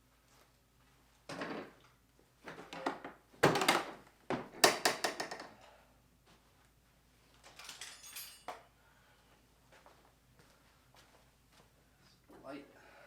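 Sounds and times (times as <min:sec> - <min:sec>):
tools knocking and clattering: 0:02.5 - 0:05.5, 0:07.4 - 0:08.7.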